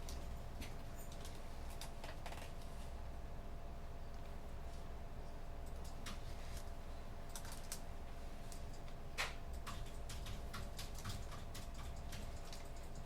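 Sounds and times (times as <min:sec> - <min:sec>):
low room hum: 0:00.0 - 0:13.0
keyboard typing clicks: 0:07.2 - 0:07.8, 0:08.5 - 0:13.0.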